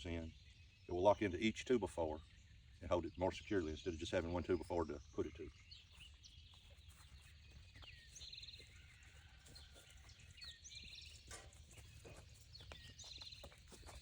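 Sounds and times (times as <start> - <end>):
faint birdsong: 0.0 - 14.0.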